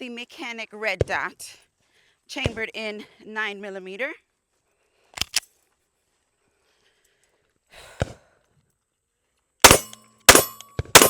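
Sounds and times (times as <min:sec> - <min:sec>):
pistol handling click: 0:05.2 - 0:05.5, 0:09.7 - 0:11.0
pistol shots: 0:09.6 - 0:11.0.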